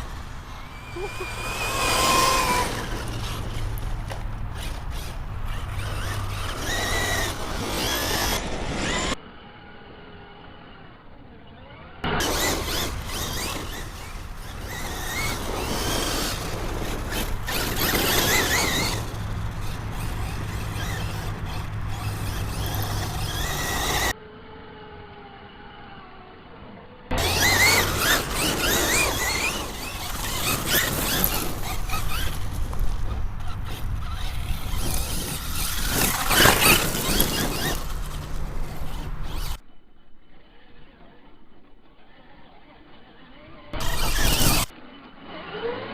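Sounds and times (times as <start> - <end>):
tyres on gravel: 0.0 - 9.2, 12.1 - 24.2, 27.1 - 39.6, 43.8 - 44.7
rc truck motor whine: 0.0 - 45.9.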